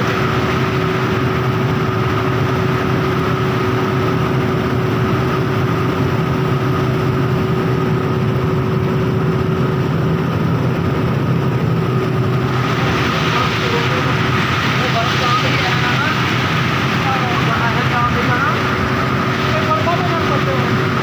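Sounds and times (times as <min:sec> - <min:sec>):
vehicle engine hum: 0:00.0 - 0:21.0
road noise hiss: 0:11.6 - 0:21.0.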